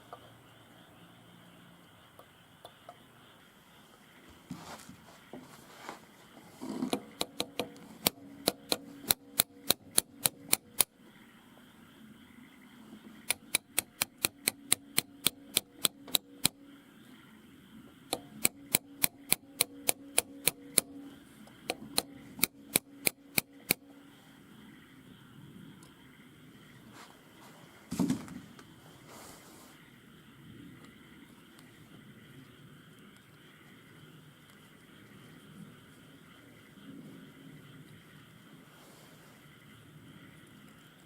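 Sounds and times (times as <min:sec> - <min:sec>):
faint steady hum: 0:00.0 - 0:41.0
sharp repeating clicks: 0:06.9 - 0:11.0, 0:13.2 - 0:16.8, 0:18.1 - 0:24.1.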